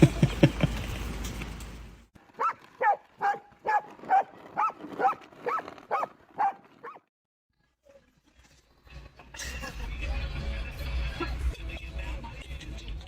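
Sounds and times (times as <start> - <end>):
dog yelping: 2.4 - 7.0.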